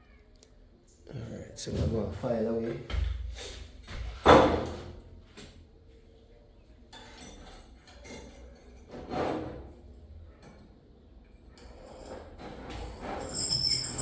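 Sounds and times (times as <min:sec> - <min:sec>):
faint metal scraping: 0:11.7 - 0:14.0
metal clinks: 0:13.2 - 0:14.0.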